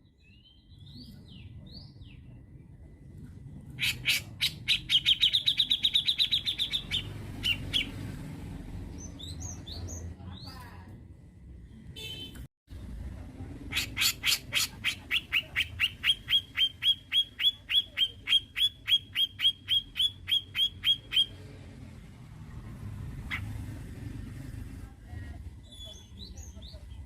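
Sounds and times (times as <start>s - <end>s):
bird calling sharp notes: 13.7s - 21.4s.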